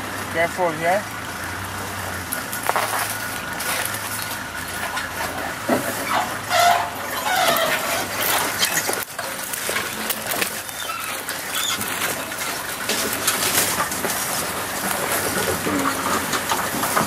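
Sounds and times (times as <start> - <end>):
birds chirping and whistling: 10.6 - 12.0.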